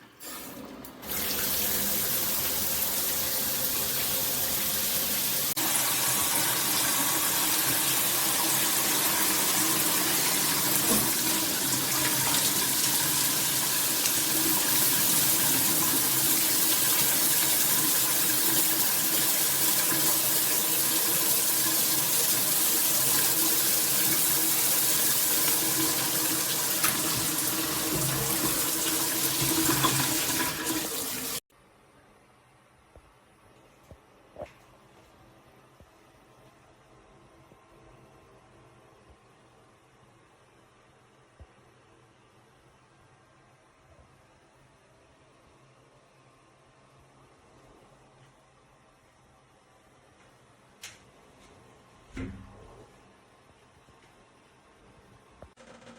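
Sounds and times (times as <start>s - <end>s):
shower water spraying: 0.2s - 31.4s.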